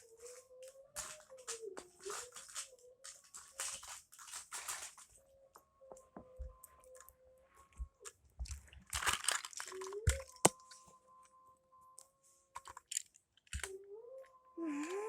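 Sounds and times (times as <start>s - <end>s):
rustling handling noise: 0.0s - 5.6s, 7.6s - 10.9s.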